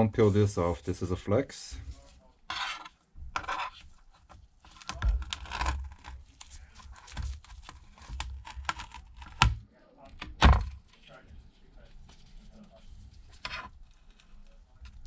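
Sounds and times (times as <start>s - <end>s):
adhesive tape tearing: 4.7s - 9.5s.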